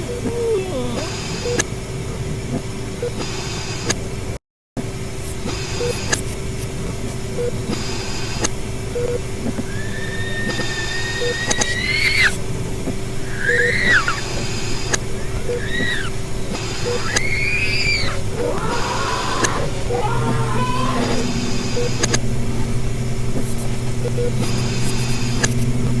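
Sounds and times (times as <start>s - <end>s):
low drone with hum: 0.0s - 26.0s
hiss: 7.7s - 8.5s, 9.6s - 21.7s
long thin squeal: 13.3s - 25.4s.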